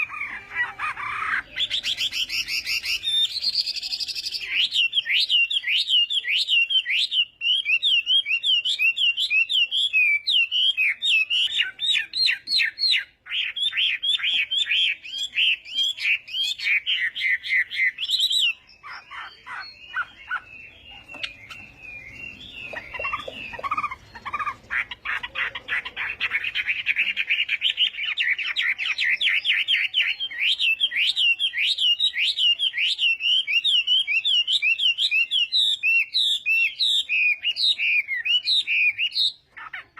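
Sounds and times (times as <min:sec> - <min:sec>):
songbird singing rapid whistles: 0:01.0 - 0:39.9.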